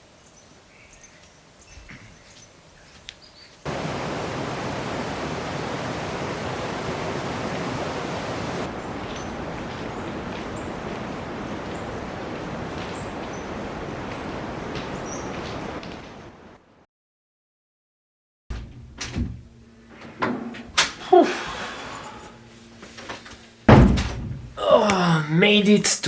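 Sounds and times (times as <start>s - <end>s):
faint bird chirps: 0.2s - 16.4s
fast-flowing water rushing: 3.7s - 16.7s.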